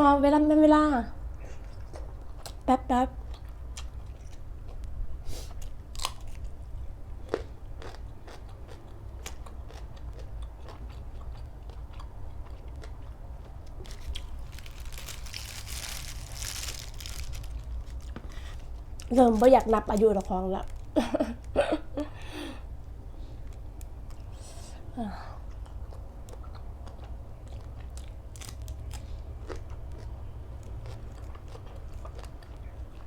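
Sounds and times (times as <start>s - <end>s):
chewing and biting: 3.3s - 4.9s, 5.5s - 6.6s, 7.2s - 19.7s, 25.4s - 33.0s
crisp crunching: 13.6s - 21.0s, 27.9s - 29.6s.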